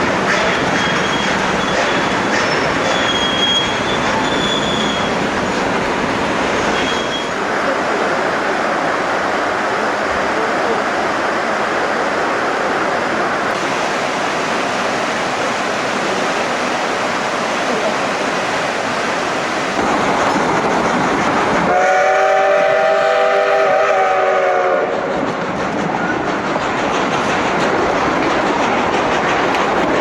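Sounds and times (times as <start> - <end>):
train wheels on rail: 0.0 - 30.0
high wheel squeals: 0.5 - 5.2, 6.7 - 7.4.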